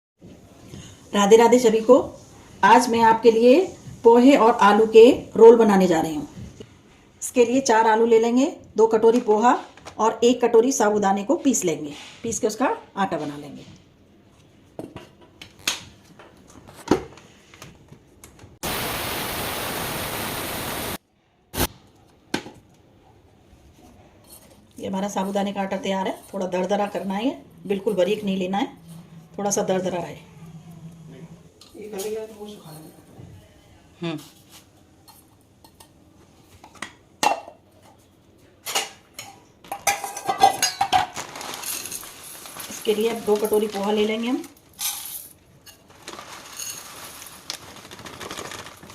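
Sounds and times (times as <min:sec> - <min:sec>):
bowls and utensils clinking: 0:38.6 - 0:43.5.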